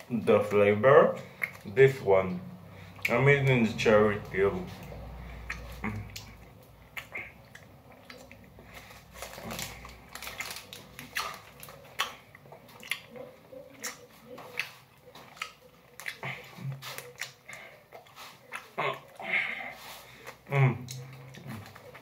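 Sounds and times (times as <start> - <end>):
person chewing gummy candy: 1.2 - 1.8, 4.6 - 22.0.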